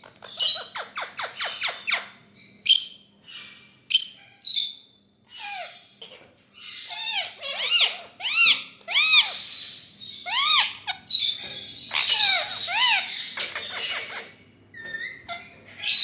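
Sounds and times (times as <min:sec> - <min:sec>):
parakeet screeching: 0:05.3 - 0:16.0
parakeet chatter: 0:05.4 - 0:16.0.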